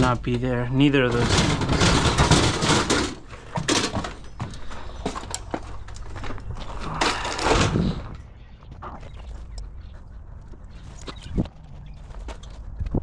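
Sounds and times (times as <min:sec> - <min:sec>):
scraping rustle: 0:00.0 - 0:09.5.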